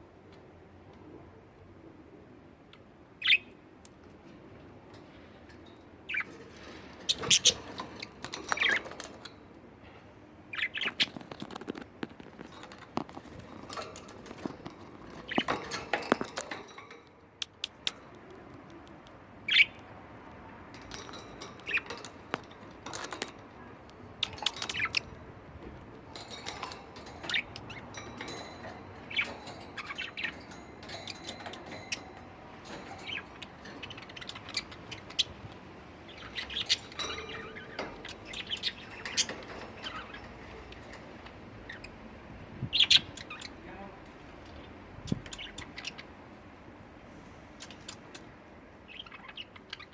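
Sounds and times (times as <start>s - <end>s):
budgerigars chirping: 6.1s - 9.3s, 10.5s - 17.0s, 19.4s - 19.8s, 20.8s - 25.4s, 26.0s - 42.0s, 42.6s - 43.8s, 44.5s - 46.2s.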